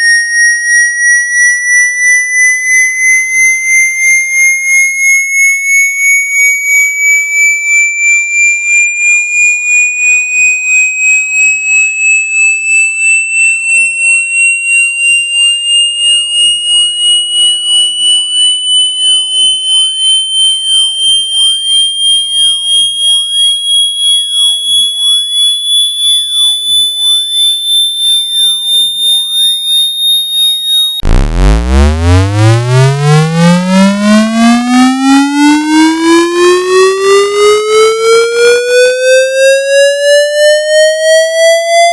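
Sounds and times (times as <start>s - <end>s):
pulsing high whistle tone: 0.0s - 41.9s
buzzy tone sweeping upward: 31.0s - 39.2s.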